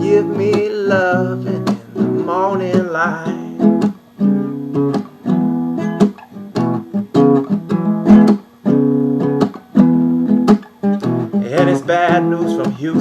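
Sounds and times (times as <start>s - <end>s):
person singing: 0.0s - 3.8s, 11.3s - 13.0s
acoustic guitar strumming chords: 0.0s - 13.0s.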